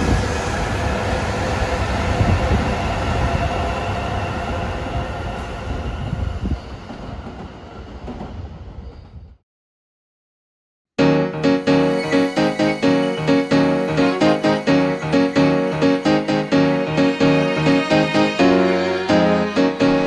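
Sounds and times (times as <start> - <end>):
high-speed train passing: 0.0 - 9.2, 11.0 - 20.0
train whining tones: 11.0 - 20.0.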